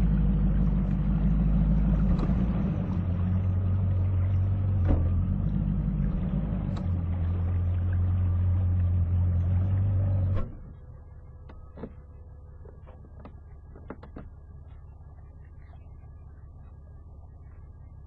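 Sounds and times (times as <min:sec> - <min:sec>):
loud engine drone: 0:00.0 - 0:17.8
quiet engine hum: 0:00.0 - 0:18.0
light clicks and knocks: 0:12.6 - 0:14.8.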